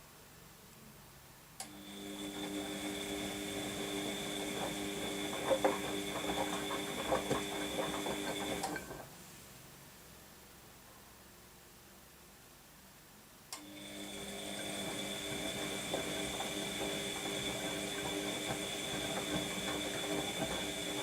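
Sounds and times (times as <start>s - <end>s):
washing machine motor humming: 1.7s - 9.2s, 13.6s - 21.0s.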